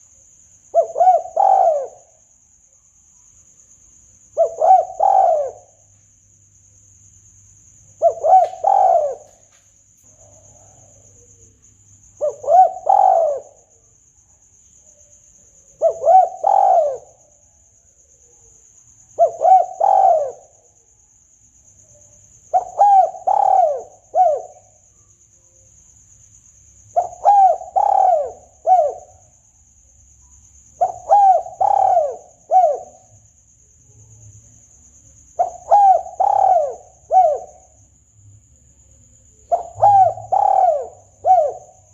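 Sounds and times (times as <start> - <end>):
dove cooing: 0.7 - 2.2, 4.4 - 5.8, 8.0 - 9.5, 12.2 - 13.7, 15.7 - 17.2, 19.2 - 20.5, 22.5 - 24.7, 27.0 - 29.2, 30.8 - 33.2, 35.4 - 37.7, 39.5 - 41.9.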